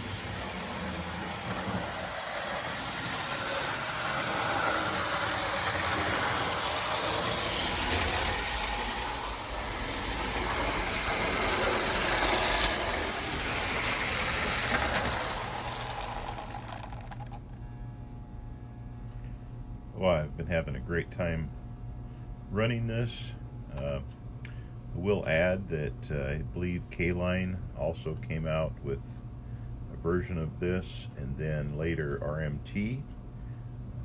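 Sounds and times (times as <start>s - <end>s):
toy train wheels rattling: 0.0s - 17.4s
toy train motor whirring: 0.0s - 17.5s.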